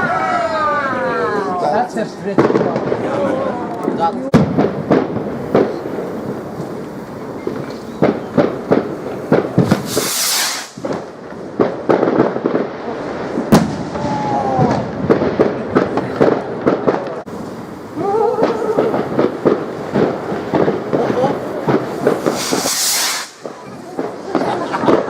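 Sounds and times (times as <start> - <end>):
fireworks crackling pops: 1.8 - 25.0
firework sharp bang: 2.3 - 3.3, 3.9 - 25.0
firework hissing whoosh: 4.6 - 16.4, 17.2 - 25.0.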